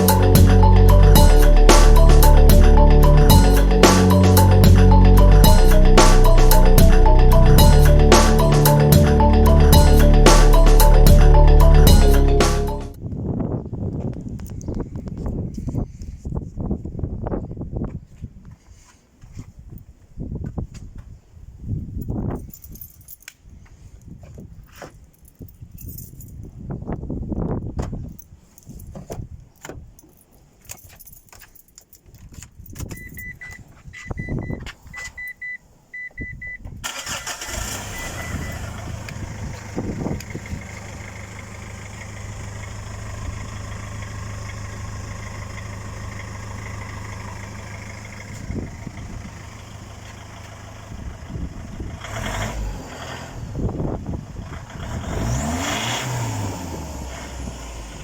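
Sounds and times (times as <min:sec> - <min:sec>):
engine revving: 0:00.0 - 0:13.0, 0:36.9 - 0:50.9, 0:51.7 - 0:58.0
short repeating beeps: 0:32.9 - 0:36.6
engine starting and idling: 0:36.8 - 0:58.0.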